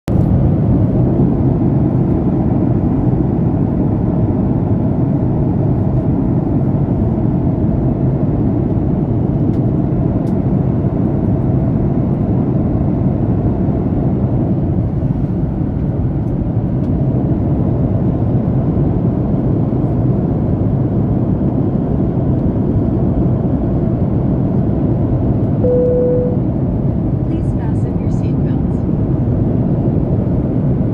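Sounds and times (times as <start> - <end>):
airliner cabin rumble: 0.1 - 30.9
short single tone: 25.6 - 26.5.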